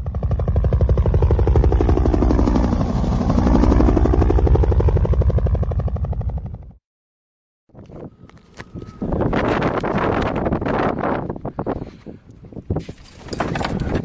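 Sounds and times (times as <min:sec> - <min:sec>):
aircraft flying past chopping: 0:00.0 - 0:06.8.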